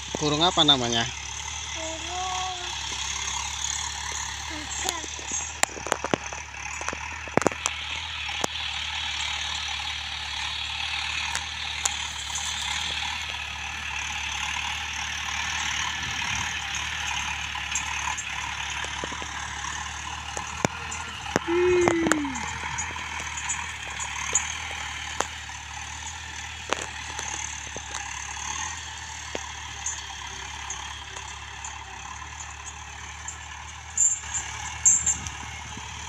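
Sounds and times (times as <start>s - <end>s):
low hum: 0.0s - 36.0s
sharp clicks: 4.8s - 8.6s.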